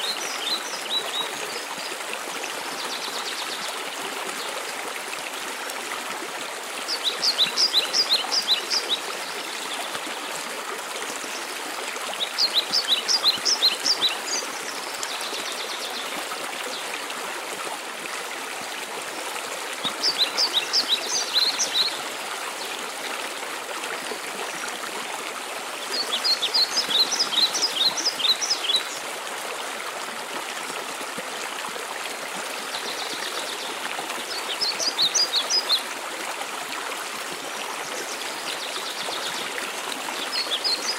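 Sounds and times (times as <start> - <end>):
songbird singing: 6.9 - 10.0, 12.1 - 16.1.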